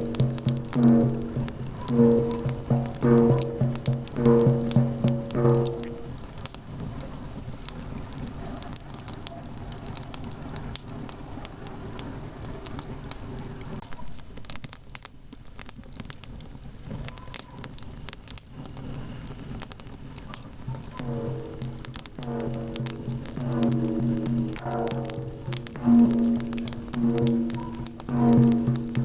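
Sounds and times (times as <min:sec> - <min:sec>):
low sustained musical tone: 0:00.0 - 0:06.2, 0:21.0 - 0:29.0
campfire crackling and popping: 0:00.0 - 0:29.0.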